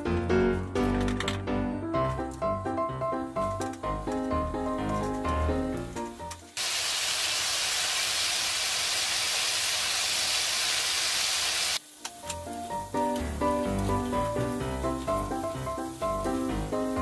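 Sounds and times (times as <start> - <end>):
background music: 0.0 - 6.6, 12.1 - 17.0
chicken deep-frying in oil: 6.0 - 17.0.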